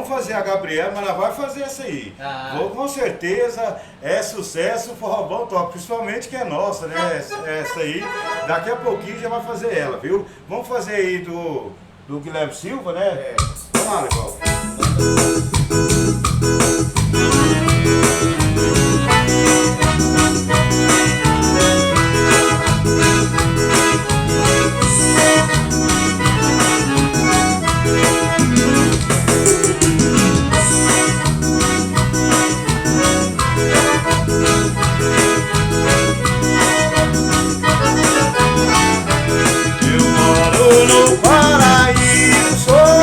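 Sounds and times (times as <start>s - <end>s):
accordion melody: 6.9s - 10.0s, 14.4s - 43.0s
band playing instrumental: 7.3s - 9.7s, 13.5s - 43.0s.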